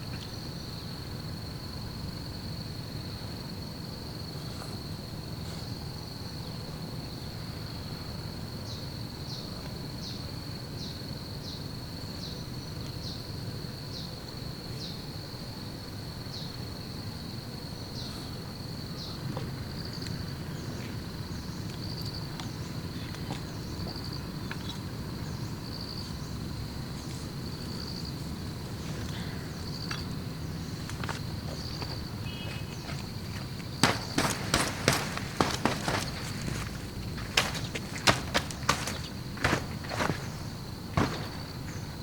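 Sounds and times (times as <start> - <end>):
insect chirping: 0.0 - 42.0
insect high-pitched trill: 24.4 - 42.0.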